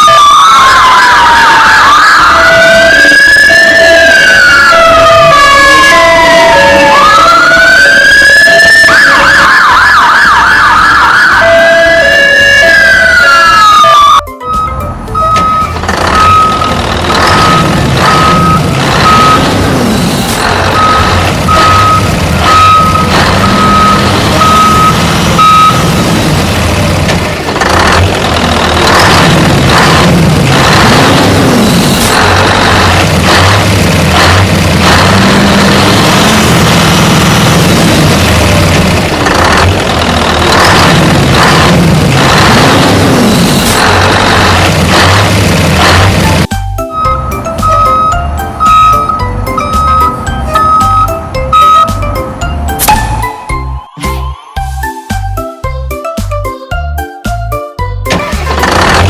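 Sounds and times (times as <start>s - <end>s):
electronic siren wailing: 0.0s - 27.0s, 40.6s - 52.0s, 52.7s - 55.0s
repeated beeping tone: 12.7s - 19.8s, 20.4s - 26.4s, 46.5s - 56.2s
steady beeps: 46.9s - 55.1s.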